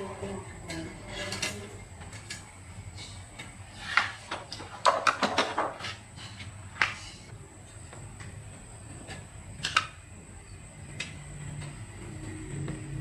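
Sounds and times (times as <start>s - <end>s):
low steady hum: 0.0s - 13.0s
tools clattering on workbench: 3.9s - 6.0s.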